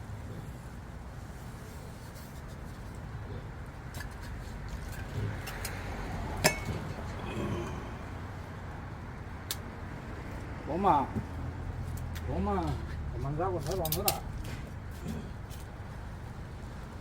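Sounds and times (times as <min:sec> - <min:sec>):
small clicks and clinks: 0:13.6 - 0:14.3.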